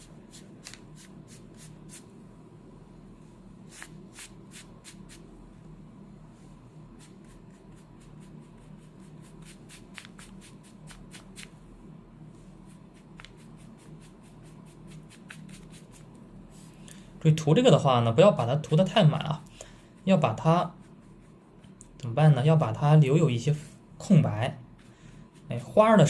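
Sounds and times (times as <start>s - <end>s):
ink brush dabbing on paper: 0.0s - 2.1s, 3.6s - 5.3s, 6.4s - 11.6s, 12.3s - 16.8s, 17.5s - 23.0s, 24.8s - 26.0s
steady low hum: 0.0s - 26.0s.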